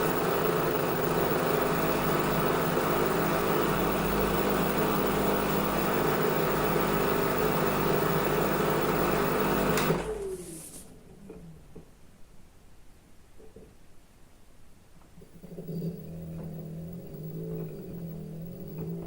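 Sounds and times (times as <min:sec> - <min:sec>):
washing machine motor hum: 0:00.0 - 0:11.4, 0:15.4 - 0:19.0.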